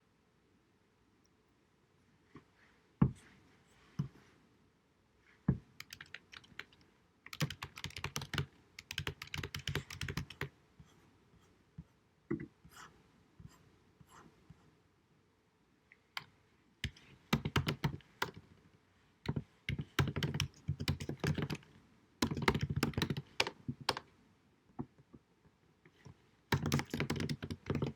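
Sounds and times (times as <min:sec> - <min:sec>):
typing on computer keyboard: 0:05.8 - 0:10.5, 0:16.2 - 0:18.4, 0:19.3 - 0:21.6, 0:22.2 - 0:24.0, 0:26.5 - 0:27.9.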